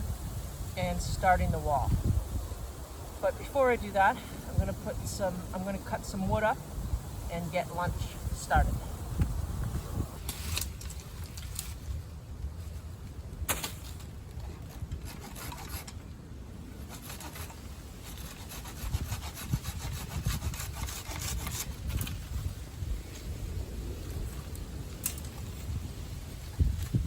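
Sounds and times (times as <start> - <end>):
hand saw cutting wood: 14.6 - 16.0, 16.8 - 22.3.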